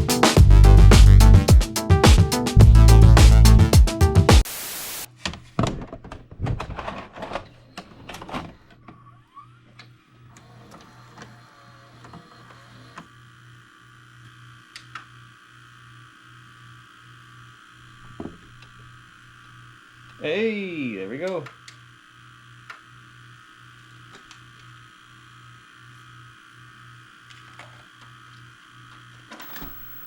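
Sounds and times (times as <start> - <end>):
small motor whirring: 9.0 - 18.0, 21.8 - 30.0
tape hiss: 29.4 - 30.0.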